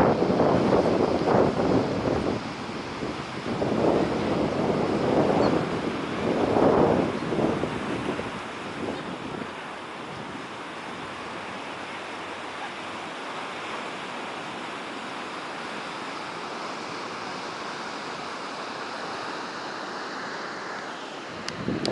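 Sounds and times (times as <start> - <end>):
ocean surf breaking: 0.0 - 21.9.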